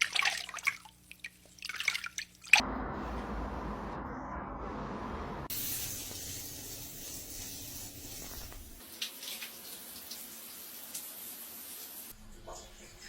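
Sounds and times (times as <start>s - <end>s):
shower water spraying: 5.5s - 12.2s.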